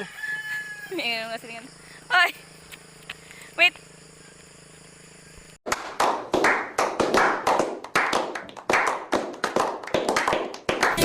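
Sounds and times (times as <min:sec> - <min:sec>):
faint steady hum: 0:00.5 - 0:05.6
sharp claps: 0:05.7 - 0:11.0.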